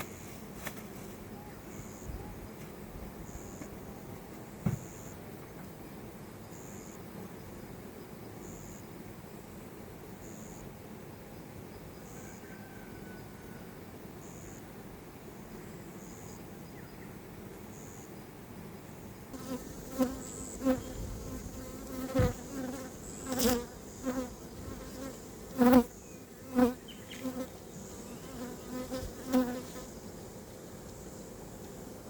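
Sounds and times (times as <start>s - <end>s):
honeybees buzzing past: 19.3s - 32.0s.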